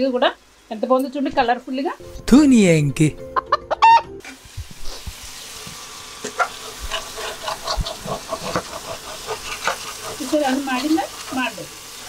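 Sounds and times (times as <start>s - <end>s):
liver sizzling in a frying pan: 0.0s - 2.0s, 4.2s - 12.0s
spatula scraping a pan: 6.2s - 12.0s.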